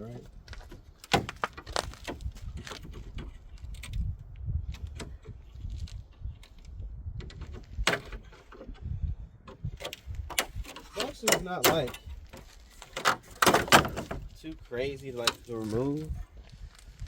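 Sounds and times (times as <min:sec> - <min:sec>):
tools and car parts clicking: 0:09.5 - 0:14.1.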